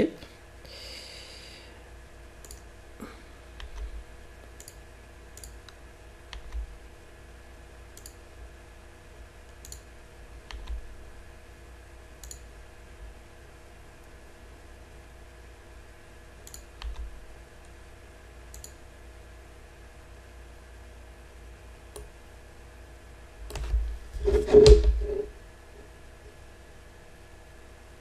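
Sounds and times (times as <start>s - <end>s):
faint steady hum: 0.0s - 28.0s
mouse and keyboard clicks: 2.4s - 2.6s, 5.4s - 6.6s, 12.2s - 12.4s.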